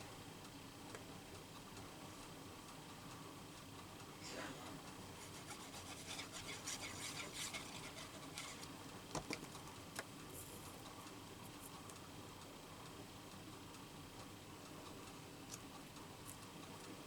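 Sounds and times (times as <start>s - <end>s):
scratching on paper: 5.0s - 8.8s.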